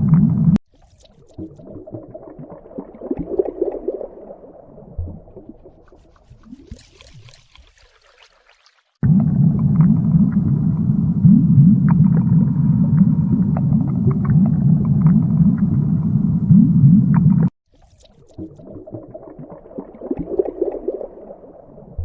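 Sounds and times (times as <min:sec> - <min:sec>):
low underwater rumbling: 0:00.0 - 0:00.6, 0:01.4 - 0:06.7, 0:09.0 - 0:17.6.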